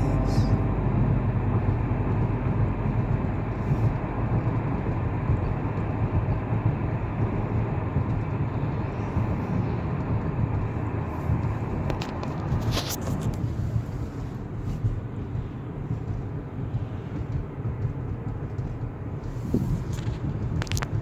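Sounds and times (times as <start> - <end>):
car driving: 0.0 - 21.0.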